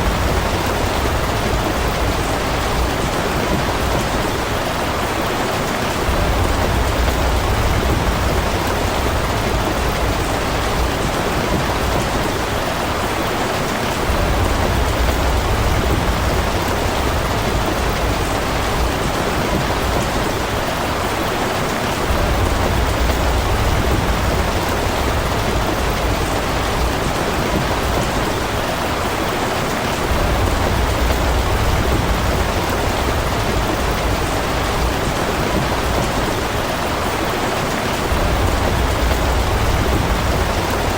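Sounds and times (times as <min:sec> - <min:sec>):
steady rain falling: 0:00.0 - 0:40.9
low rumble: 0:38.1 - 0:40.9.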